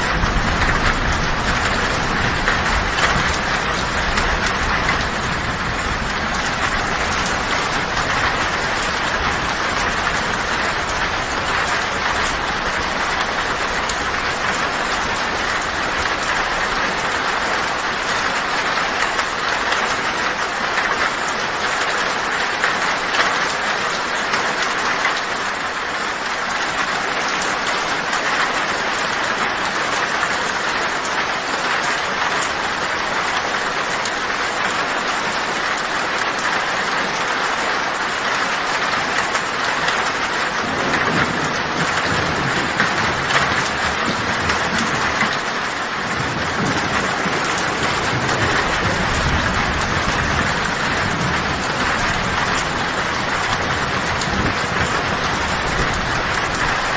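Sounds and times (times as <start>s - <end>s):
low rumble of thunder: 0.0s - 18.5s, 40.5s - 56.8s
heavy rain on a tin roof: 0.0s - 56.9s.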